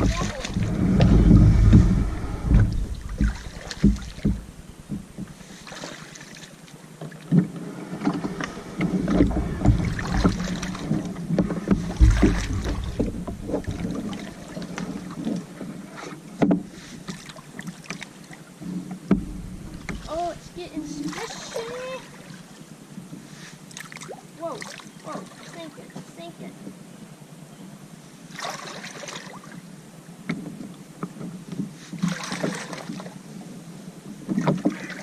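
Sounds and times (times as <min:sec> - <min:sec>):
kayak knocks: 0:00.0 - 0:05.7, 0:07.0 - 0:17.3, 0:18.6 - 0:21.9, 0:34.1 - 0:35.0
sloshing steps in shallow water: 0:00.0 - 0:07.2, 0:08.2 - 0:15.5, 0:31.9 - 0:33.2.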